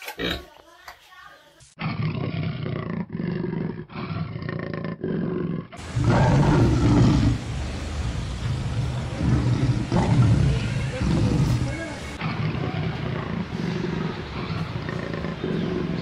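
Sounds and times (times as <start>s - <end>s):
deep farm animal calls: 5.8s - 16.0s.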